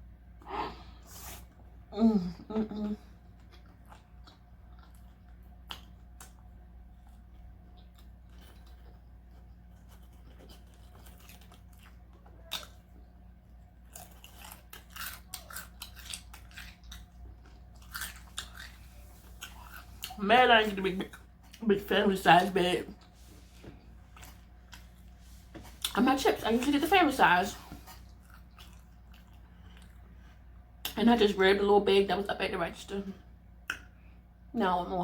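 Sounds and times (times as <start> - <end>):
faint steady hum: 0.0 - 35.0
person chewing crunchy food: 3.2 - 20.2, 23.0 - 26.0, 27.7 - 30.4.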